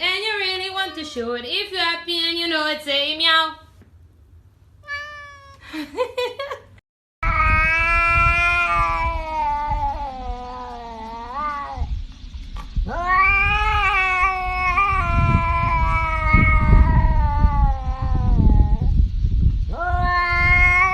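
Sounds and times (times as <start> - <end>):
cat yowling: 4.8 - 5.6, 7.2 - 11.9, 12.8 - 18.9, 19.7 - 20.9
low rumble: 7.2 - 20.9.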